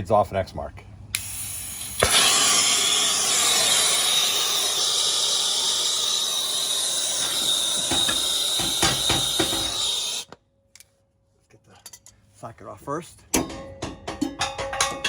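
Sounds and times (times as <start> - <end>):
gas torch hissing and whistling: 1.1 - 10.3.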